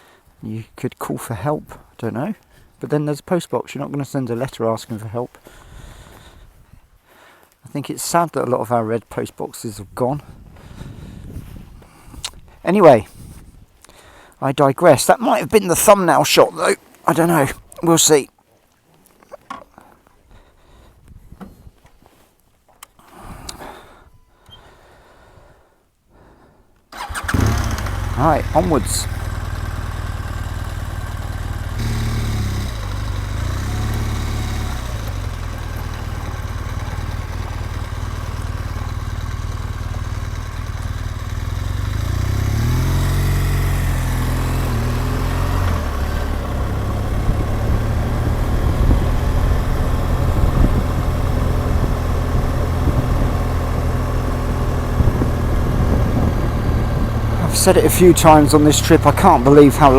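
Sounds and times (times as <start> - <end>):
motorcycle engine revving: 27.0 - 59.9.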